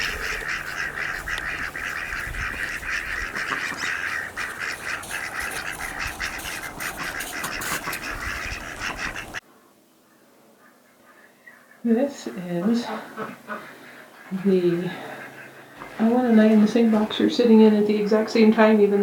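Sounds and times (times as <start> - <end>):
flock of birds calling: 0.0 - 9.4, 10.6 - 19.0.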